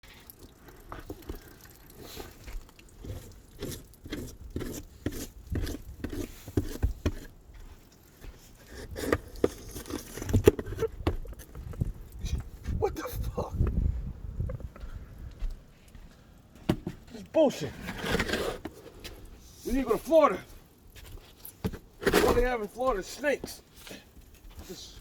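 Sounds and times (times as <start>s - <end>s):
footsteps crunching snow: 17.6s - 25.0s.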